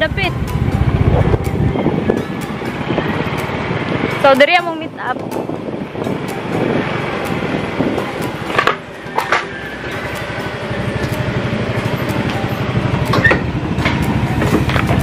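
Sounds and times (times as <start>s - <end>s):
motorcycle engine idling: 6.8s - 15.0s.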